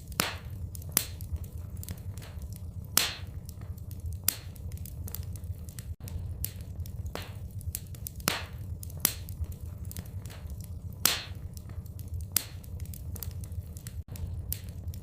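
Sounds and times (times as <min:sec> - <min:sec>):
low rumble of fire: 0:00.0 - 0:15.0
wood fire crackling and popping: 0:00.0 - 0:15.0.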